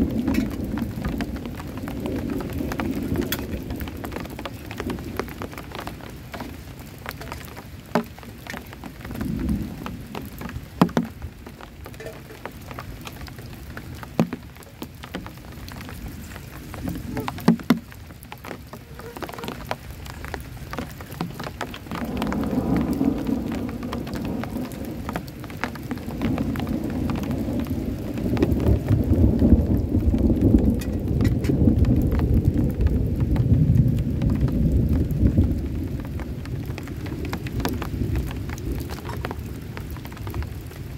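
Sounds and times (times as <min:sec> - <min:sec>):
low thunder rumble: 0:00.0 - 0:40.9
rain falling: 0:00.0 - 0:40.9.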